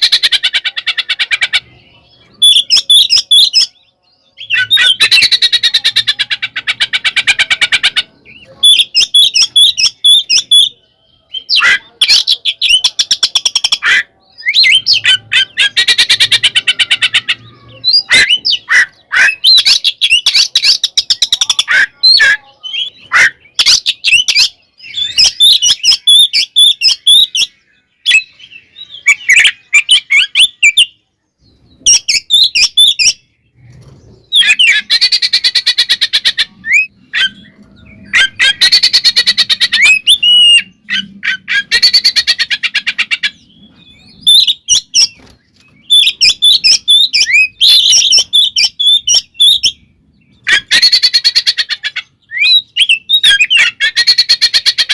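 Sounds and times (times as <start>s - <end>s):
songbird whistling and chattering: 0.0s - 54.9s.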